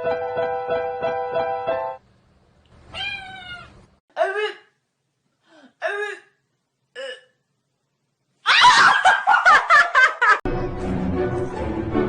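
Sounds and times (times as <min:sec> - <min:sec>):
music: 0:00.0 - 0:02.0, 0:10.5 - 0:12.0
cat meowing: 0:02.9 - 0:03.9
person laughing loudly: 0:08.5 - 0:10.4.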